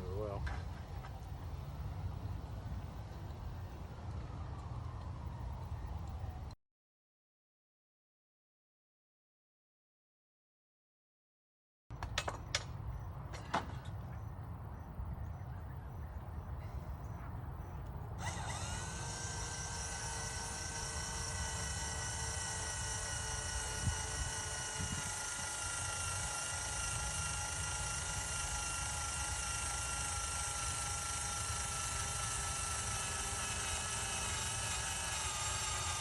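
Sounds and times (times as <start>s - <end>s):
power drill whining: 18.2s - 36.0s.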